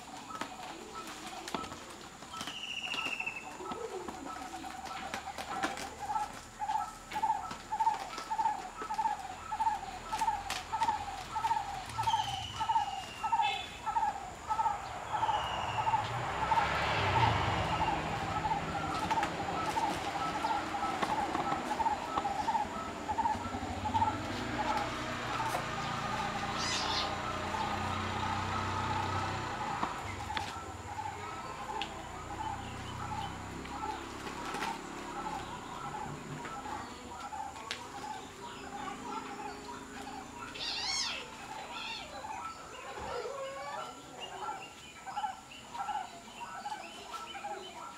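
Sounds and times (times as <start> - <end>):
bird hooting: 0.0 - 47.9
high falling bird chirps: 2.3 - 4.0, 6.6 - 37.2, 38.0 - 43.2.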